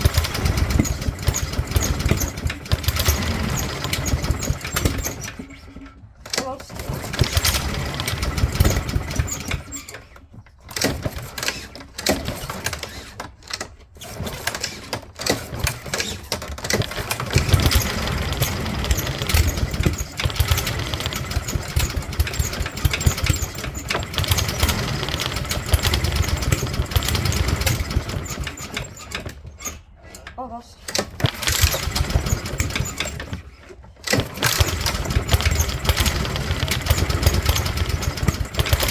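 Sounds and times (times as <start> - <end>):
lawnmower engine sputtering: 0.0 - 10.0, 14.1 - 29.9, 30.9 - 38.9.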